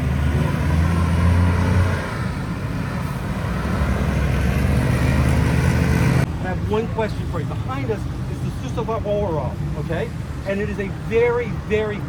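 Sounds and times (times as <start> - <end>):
vehicle passing close: 0.0 - 6.3
road traffic: 0.0 - 12.0.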